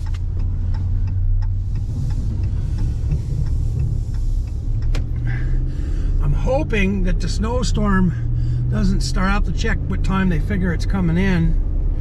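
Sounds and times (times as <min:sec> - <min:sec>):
faint ticks: 0:00.0 - 0:05.2
engine and road noise in cab: 0:00.0 - 0:12.0.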